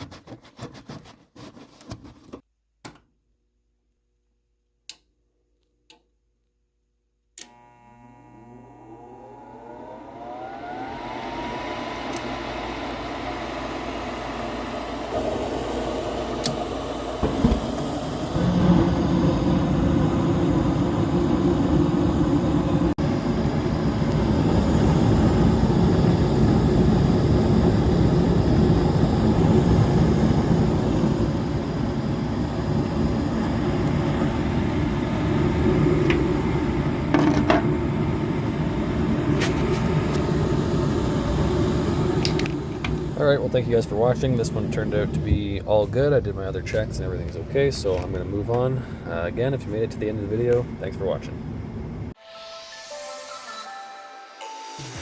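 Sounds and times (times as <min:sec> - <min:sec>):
furnace draft inducer motor: 0:07.4 - 0:52.1
furnace thump: 0:17.2 - 0:18.0.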